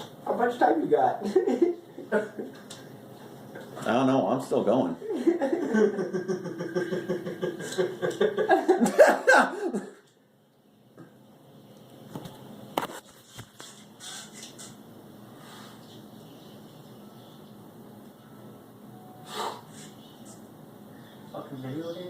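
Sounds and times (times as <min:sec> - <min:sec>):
person laughing hard: 0:05.0 - 0:10.0.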